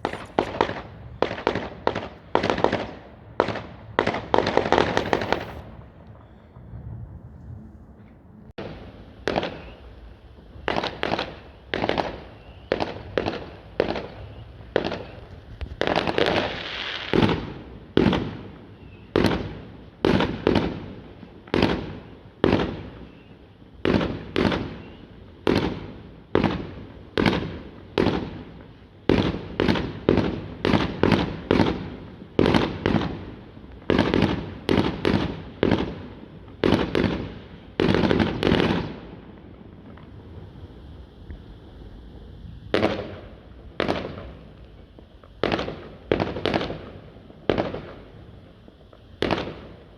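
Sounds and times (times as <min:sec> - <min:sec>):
fireworks bangs echoing: 0:00.0 - 0:41.9, 0:42.6 - 0:49.9.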